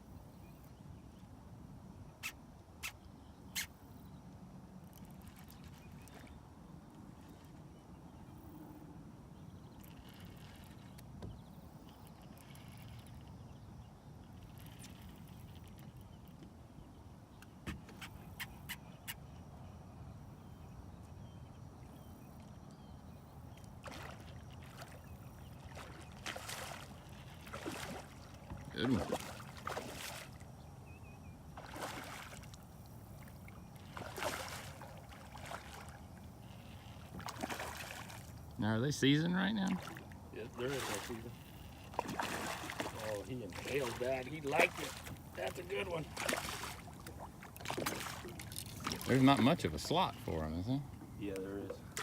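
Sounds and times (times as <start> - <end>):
water lapping against boat hull: 4.8 - 7.9, 9.6 - 16.6, 22.0 - 38.6, 39.2 - 52.0.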